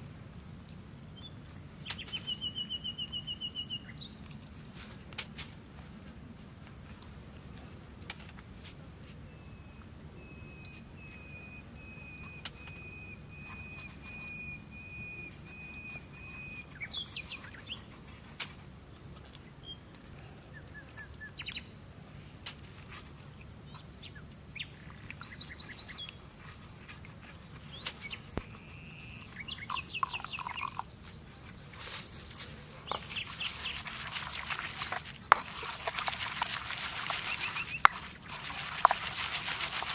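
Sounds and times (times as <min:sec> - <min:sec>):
small birds chirping: 0:00.3 - 0:05.0, 0:05.6 - 0:39.9
long thin whistle: 0:10.2 - 0:16.7.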